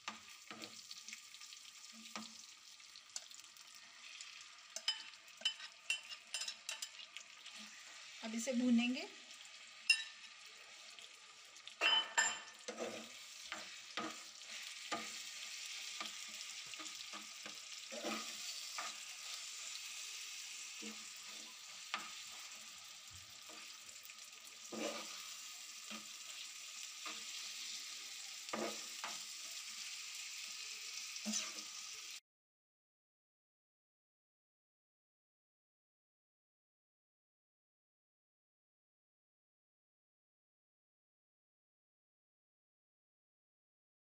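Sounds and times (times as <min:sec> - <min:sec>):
metal spatula scraping a pan: 0:00.0 - 0:01.2, 0:01.8 - 0:08.7, 0:09.5 - 0:32.0
mince sizzling in a pan: 0:00.0 - 0:32.2.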